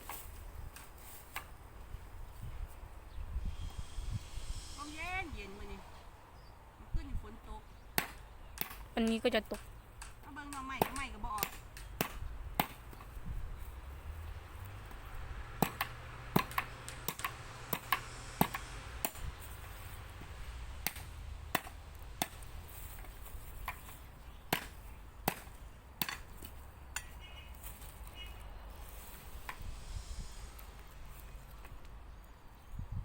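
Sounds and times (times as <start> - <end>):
wind rumble on microphone: 0.3 - 7.7, 11.0 - 24.5, 28.6 - 33.0
sharp chopping strikes: 8.0 - 13.0, 15.6 - 19.3, 20.8 - 23.9, 24.5 - 26.6.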